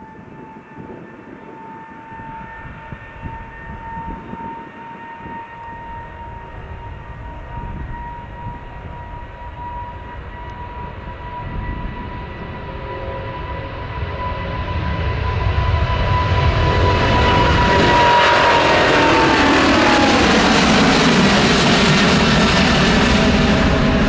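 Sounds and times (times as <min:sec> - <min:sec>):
jet engine whine: 0:00.0 - 0:24.0.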